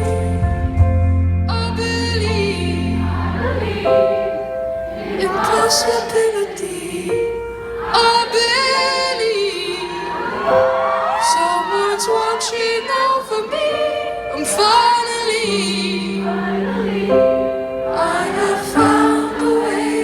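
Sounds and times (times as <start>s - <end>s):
deep bass note: 0.0s - 3.3s.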